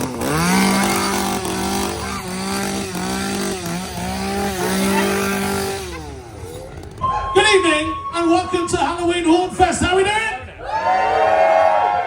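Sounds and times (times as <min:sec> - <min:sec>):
chainsaw running: 0:00.0 - 0:07.0.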